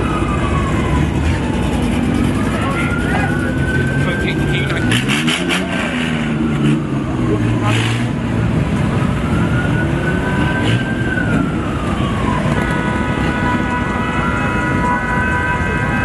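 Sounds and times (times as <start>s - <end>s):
cars and crowd noise: 0.0s - 16.0s
police siren wailing: 0.0s - 16.0s
steady held siren tone: 9.1s - 16.0s.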